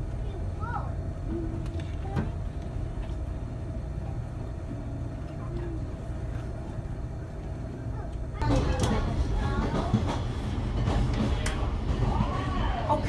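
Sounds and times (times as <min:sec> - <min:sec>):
faint steady hum: 0:00.0 - 0:09.0
train rumble from on board: 0:00.0 - 0:13.0.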